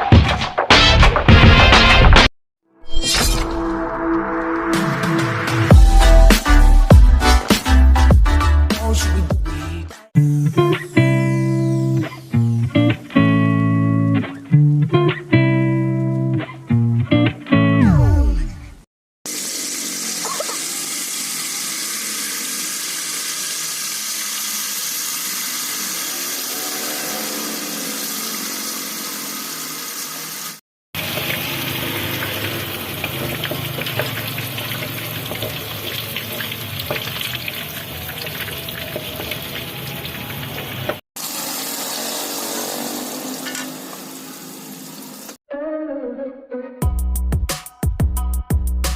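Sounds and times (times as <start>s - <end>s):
tap water running into sink: 19.3s - 26.5s, 27.4s - 45.4s.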